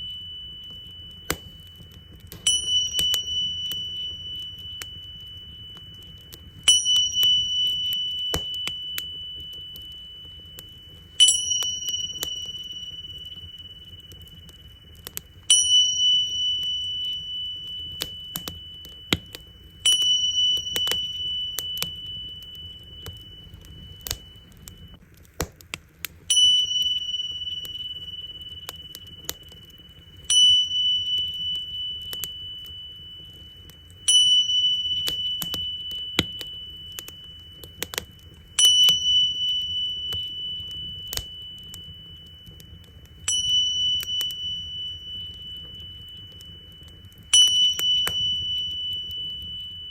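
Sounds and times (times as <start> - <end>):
tingsha cymbals ringing: 0.0 - 25.0, 26.3 - 49.9
wood fire crackling and popping: 0.0 - 49.9.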